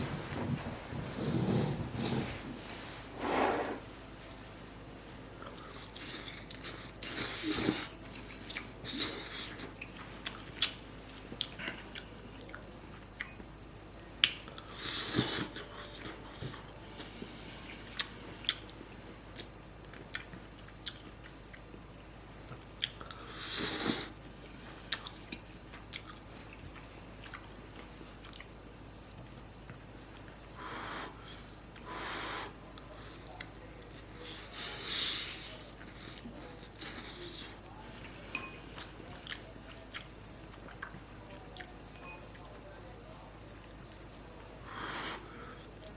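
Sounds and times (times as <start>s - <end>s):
person chewing noodles: 5.4s - 13.4s, 14.2s - 21.8s, 22.5s - 41.8s.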